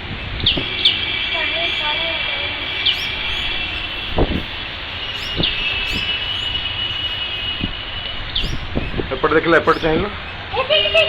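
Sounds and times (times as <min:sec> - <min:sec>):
high-pitched drone: 0:00.0 - 0:11.0
small birds chirping: 0:00.0 - 0:11.0.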